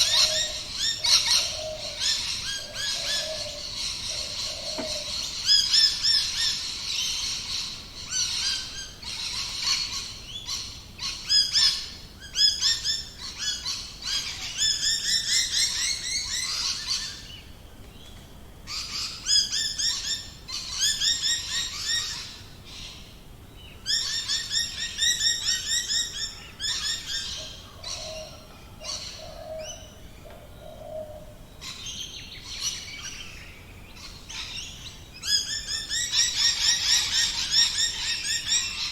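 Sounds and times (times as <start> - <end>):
birds chirping rapidly: 0.0 - 17.5.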